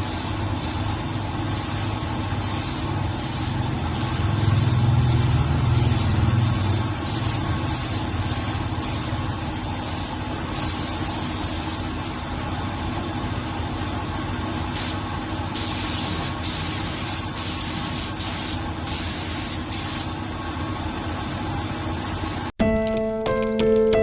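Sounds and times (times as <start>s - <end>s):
compressed air hissing bursts: 0.0s - 9.2s, 9.8s - 11.9s, 14.8s - 20.2s.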